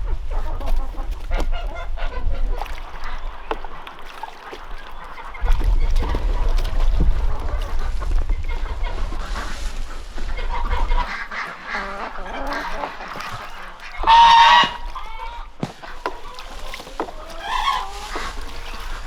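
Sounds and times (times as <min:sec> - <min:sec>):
geese honking: 0:00.3 - 0:19.0
low rumble: 0:05.4 - 0:11.0.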